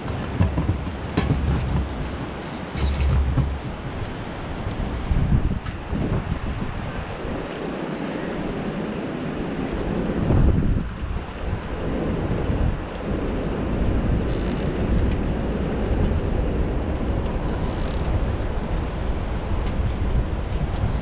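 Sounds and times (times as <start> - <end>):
boat engine rumbling: 0.0 - 5.6, 16.1 - 21.0
wind buffeting microphone: 0.0 - 21.0.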